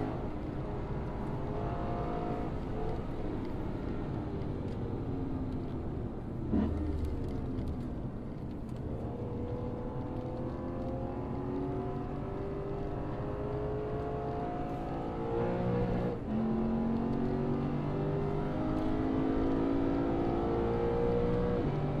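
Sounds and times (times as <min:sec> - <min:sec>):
car engine accelerating: 0:08.8 - 0:22.0.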